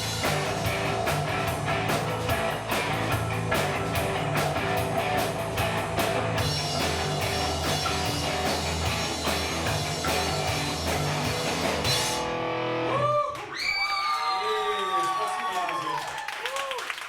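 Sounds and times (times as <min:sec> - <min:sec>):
live rock band playing: 0:00.0 - 0:13.1.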